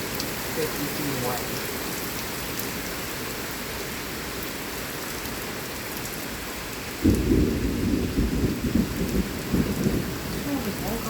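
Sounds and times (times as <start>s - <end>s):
heavy rain falling: 0.0s - 11.0s
thunder rumbling: 7.0s - 11.0s.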